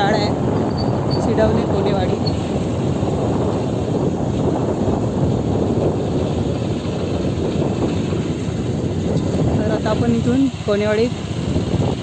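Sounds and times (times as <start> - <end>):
vehicle rumbling on the move: 0.0 - 12.0.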